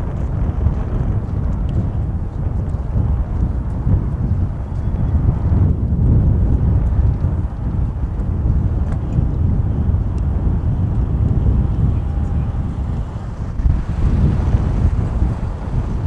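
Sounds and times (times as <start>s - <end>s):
wind buffeting microphone: 0.0s - 16.0s
jet engines rumbling: 3.5s - 16.0s.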